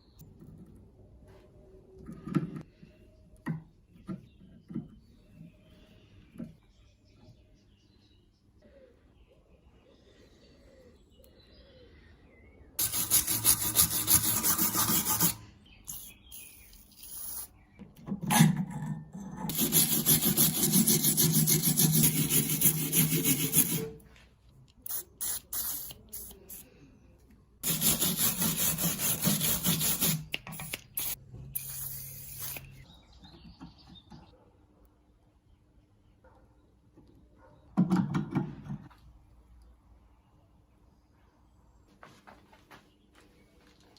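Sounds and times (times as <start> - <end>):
scraping rust off metal wrench: 12.8 - 17.5, 19.5 - 24.0, 27.6 - 32.6.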